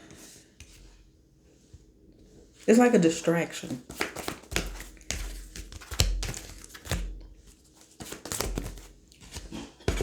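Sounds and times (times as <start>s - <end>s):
cards rustling and tapping: 3.6s - 10.0s.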